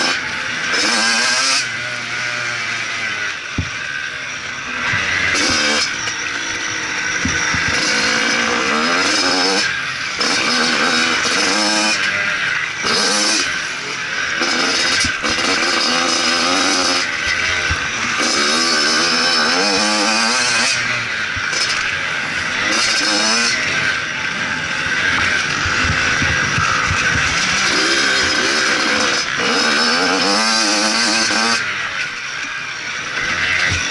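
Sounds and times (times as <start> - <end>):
motocross engine revving: 0.0 - 33.9
steady rushing noise: 2.7 - 10.3, 20.8 - 29.4.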